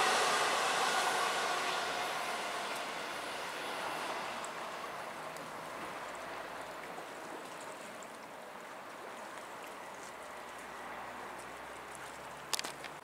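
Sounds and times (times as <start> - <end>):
electric train rail noise: 0.0 - 5.0.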